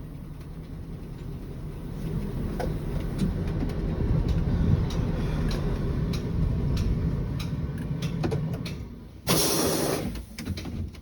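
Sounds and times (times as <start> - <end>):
bus engine rumbling: 0.0 - 11.0
compressed air hiss: 9.3 - 10.4.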